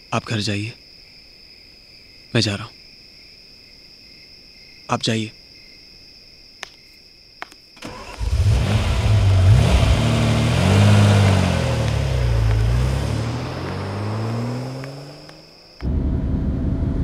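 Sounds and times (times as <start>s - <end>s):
sports car engine starting and revving: 7.8s - 17.0s.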